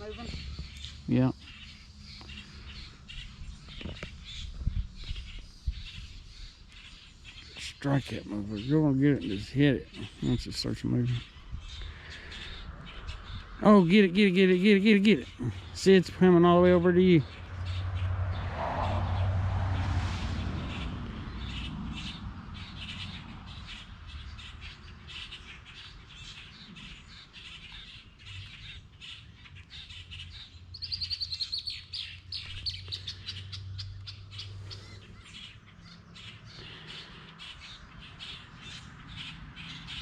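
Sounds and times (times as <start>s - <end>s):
birds chirping and calling: 0.0s - 40.0s.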